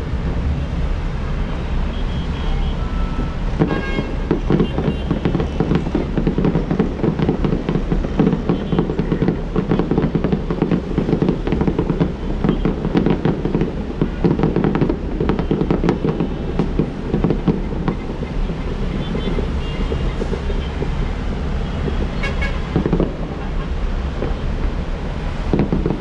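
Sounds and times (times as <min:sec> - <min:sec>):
low rumble: 0:00.0 - 0:02.4
fireworks crackling and banging: 0:00.0 - 0:26.0.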